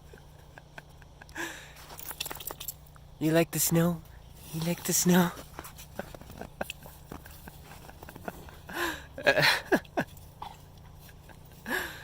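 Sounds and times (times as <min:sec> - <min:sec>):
dog rolling in snow: 0:05.5 - 0:08.7.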